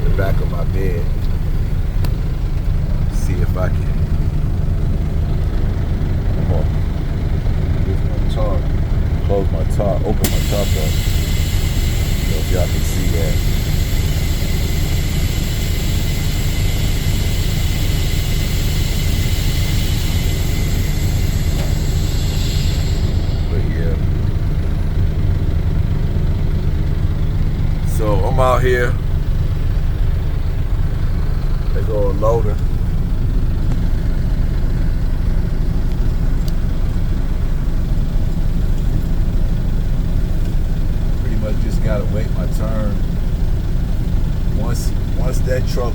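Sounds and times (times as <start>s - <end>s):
diesel engine idling: 0.0s - 45.9s
hiss: 10.2s - 23.7s.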